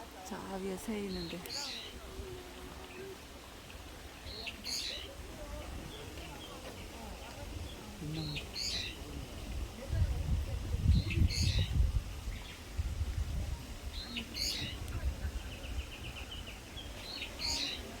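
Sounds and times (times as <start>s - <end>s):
songbird calling: 1.2s - 2.0s, 2.8s - 5.2s, 7.6s - 9.0s, 11.0s - 12.7s, 13.9s - 18.0s
low rumble on microphone: 7.4s - 16.9s.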